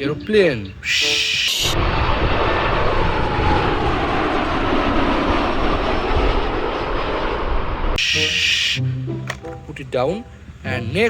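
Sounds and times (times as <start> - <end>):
jet engine rush and whine: 0.8 - 8.8.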